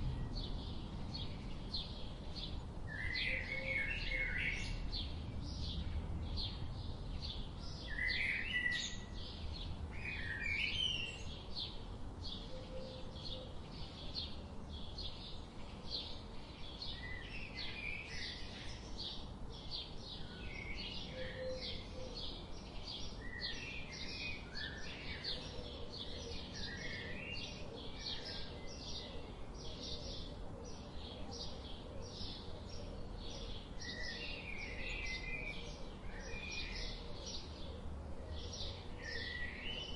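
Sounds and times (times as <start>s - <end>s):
low background rumble: 0.0s - 2.9s.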